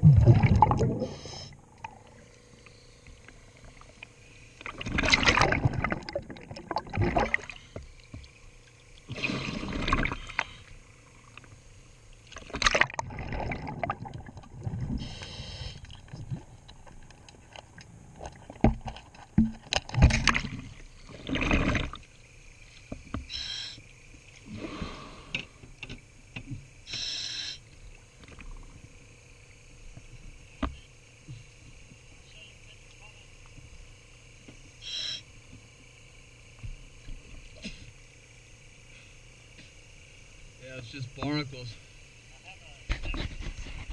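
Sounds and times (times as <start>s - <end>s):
exhaled bubbles bursting: 0.0s - 2.1s, 4.6s - 7.6s, 9.1s - 10.4s, 12.5s - 15.0s, 20.0s - 22.0s
clicks and knocks underwater: 1.7s - 10.6s, 12.2s - 15.0s, 15.8s - 22.1s, 24.3s - 26.7s, 27.8s - 29.0s, 42.8s - 43.9s
scuba regulator hissing: 23.3s - 23.8s, 26.9s - 27.6s, 34.8s - 35.2s.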